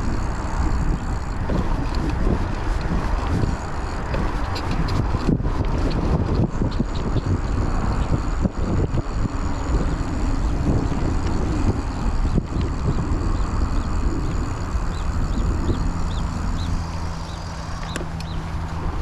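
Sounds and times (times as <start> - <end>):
bike rattling: 0.0 - 19.0
bike tyres rolling on trail: 0.0 - 19.0
faint high chirping: 12.2 - 19.0.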